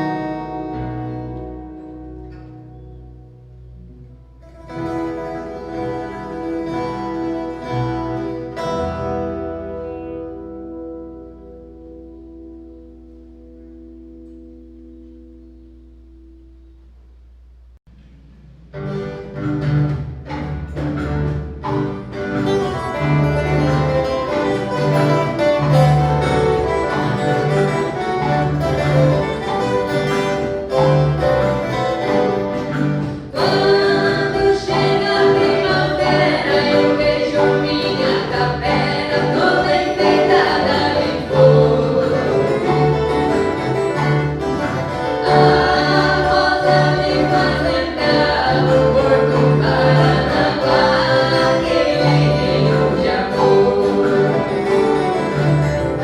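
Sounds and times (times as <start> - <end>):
folk guitar orchestra playing: 0.0 - 16.8, 17.9 - 56.0
group of voices singing: 33.1 - 44.1, 44.9 - 55.7.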